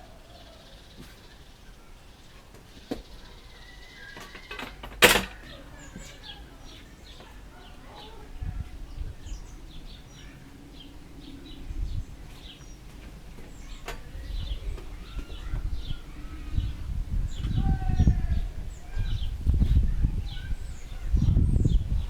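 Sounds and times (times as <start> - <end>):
small birds chirping: 0.0 - 22.0
low rumbling noise: 5.6 - 22.0.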